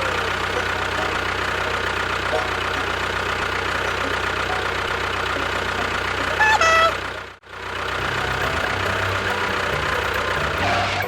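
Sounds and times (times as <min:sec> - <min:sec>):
engine running: 0:00.0 - 0:11.0
short high-pitched tone: 0:06.2 - 0:07.0.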